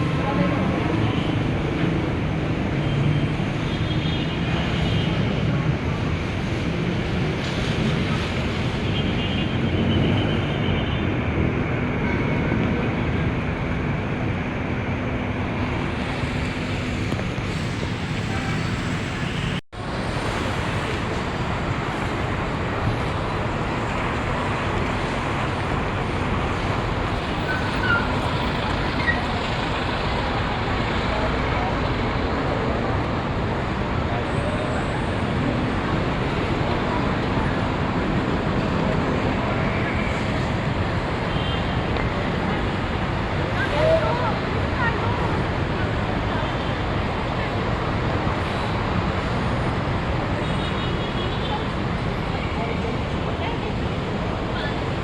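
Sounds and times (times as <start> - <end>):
traffic noise: 0.0 - 55.0.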